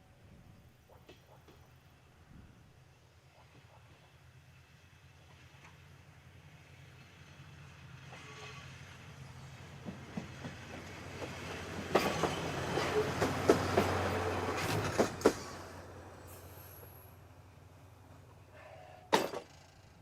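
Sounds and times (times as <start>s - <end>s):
diesel railcar engine hum: 0.0s - 20.0s
wheels clacking over rail joints: 9.6s - 15.9s, 18.1s - 20.0s.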